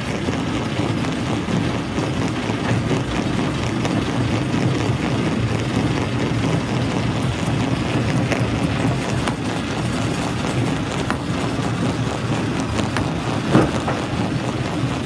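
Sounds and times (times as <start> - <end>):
rock crusher rumbling: 0.1 - 15.0
stone knocks: 13.5 - 14.3.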